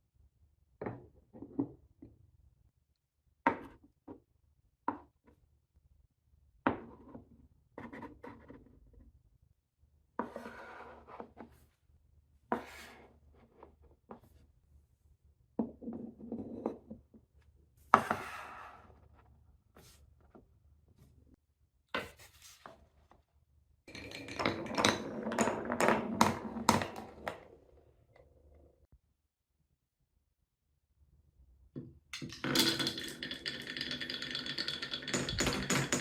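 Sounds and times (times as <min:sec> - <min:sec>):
marbles clacking on wood: 0:32.2 - 0:36.0.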